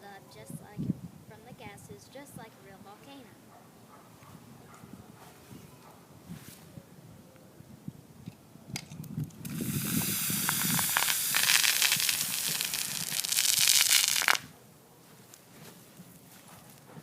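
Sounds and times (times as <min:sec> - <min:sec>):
soda foaming and spraying: 0:09.5 - 0:14.4.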